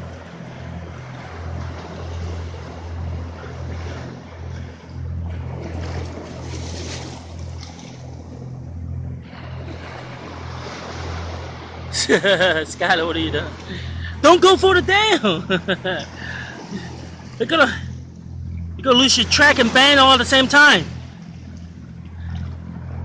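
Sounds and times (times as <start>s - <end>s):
waves washing on shore: 0.0s - 23.0s.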